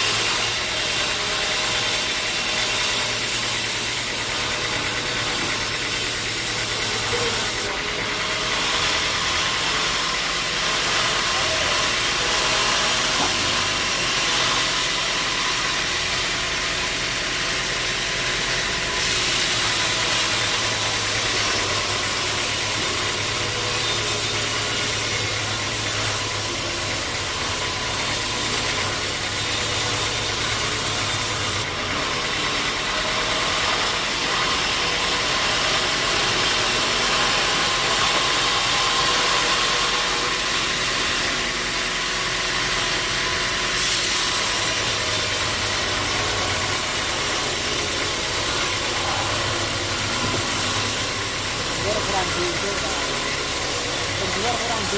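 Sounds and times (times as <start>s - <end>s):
sawmill motor hum: 0.0s - 54.9s
loud even hiss: 19.0s - 29.8s.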